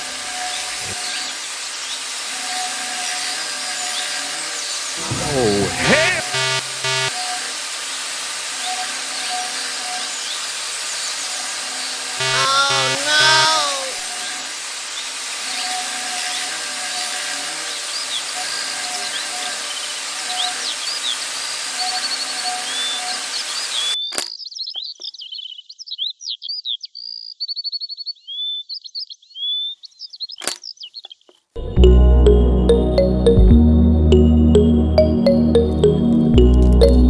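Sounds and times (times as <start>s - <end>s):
small birds chirping: 14.9s - 31.5s.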